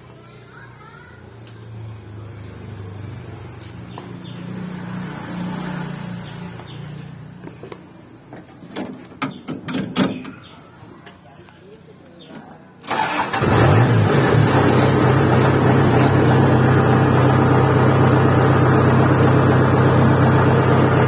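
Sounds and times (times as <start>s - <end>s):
low engine hum: 13.3s - 21.0s.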